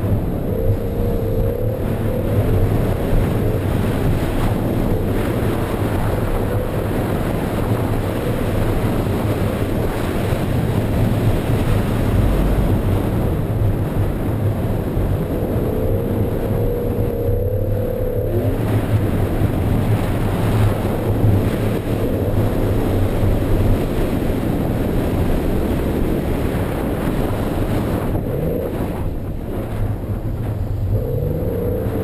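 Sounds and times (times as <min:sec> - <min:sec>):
car engine at high revs: 0:00.0 - 0:32.0.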